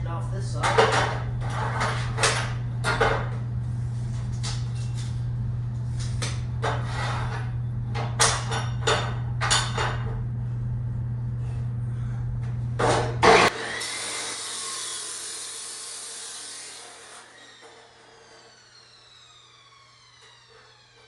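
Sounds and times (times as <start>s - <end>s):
chop saw motor running: 12.9s - 21.0s
saw blade spinning down: 13.2s - 21.0s.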